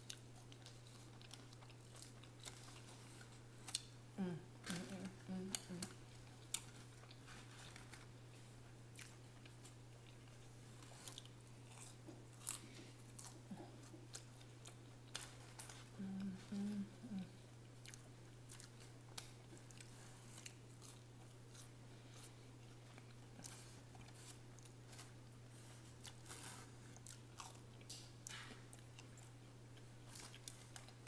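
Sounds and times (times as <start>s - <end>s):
chewing french fries: 0.0s - 31.0s
faint low hum: 0.0s - 31.0s
low vocal hum: 4.1s - 6.1s, 15.7s - 17.5s.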